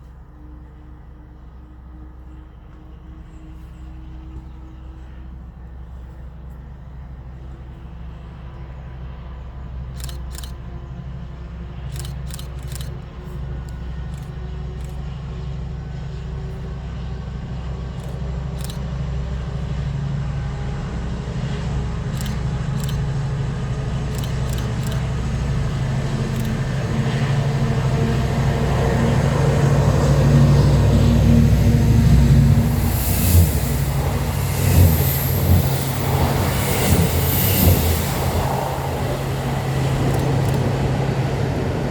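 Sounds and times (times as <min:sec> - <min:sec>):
train engine hum: 0:00.0 - 0:41.9
faint high clicks: 0:11.9 - 0:15.0, 0:24.1 - 0:25.3, 0:39.9 - 0:40.8.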